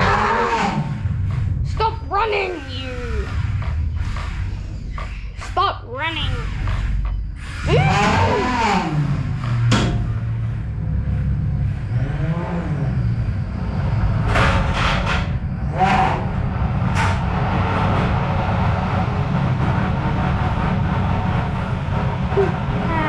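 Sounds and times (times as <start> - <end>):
small electric motors whining: 0.0 - 14.3.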